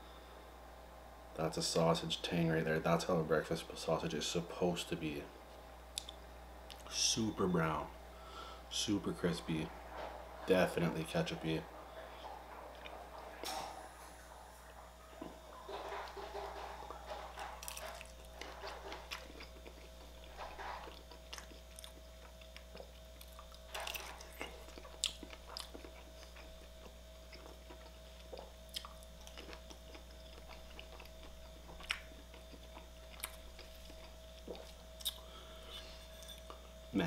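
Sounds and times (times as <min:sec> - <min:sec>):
faint steady hum: 0:00.0 - 0:37.0
chewing crispy food: 0:08.7 - 0:35.7.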